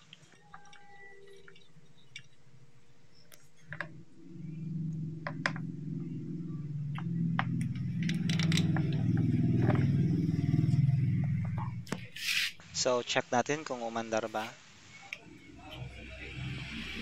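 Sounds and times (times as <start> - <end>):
small two-stroke engine running: 3.8 - 12.0.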